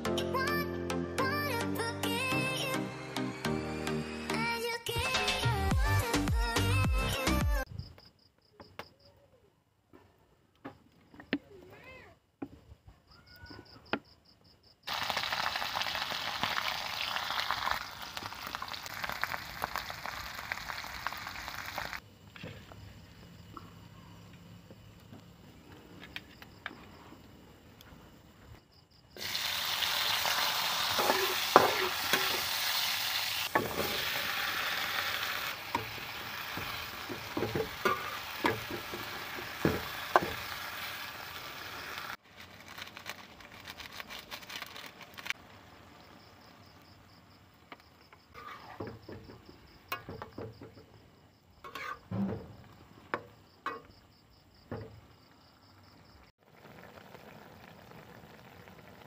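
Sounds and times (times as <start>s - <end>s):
eggplant cooking in sauce: 14.9s - 22.0s, 29.2s - 47.4s, 56.4s - 59.0s
onion and garlic sizzling in oil: 14.9s - 22.0s, 29.1s - 47.0s, 48.3s - 50.7s, 51.6s - 53.9s, 56.4s - 59.0s
spatula scraping a wok: 30.6s - 34.3s, 48.3s - 49.1s, 51.6s - 52.3s.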